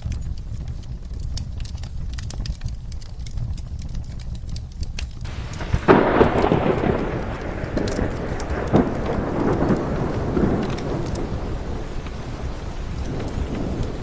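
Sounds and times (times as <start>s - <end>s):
low steady rumble: 0.0s - 14.0s
rain rushing: 0.0s - 14.0s
wood fire crackling and popping: 0.0s - 14.0s
thunder roll: 5.2s - 14.0s.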